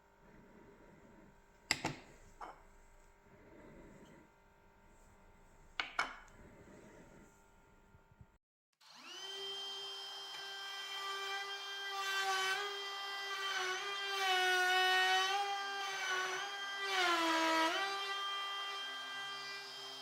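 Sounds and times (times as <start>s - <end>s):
power tool motor whine: 8.8s - 20.0s.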